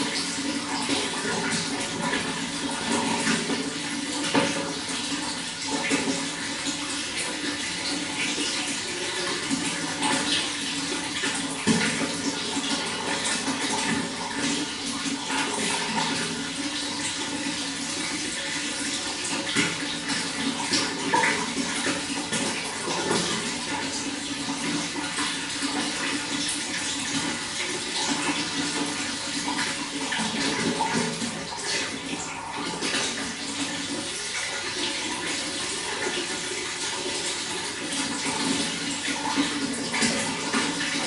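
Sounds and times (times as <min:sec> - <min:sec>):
running water splashing: 0:00.0 - 0:41.0.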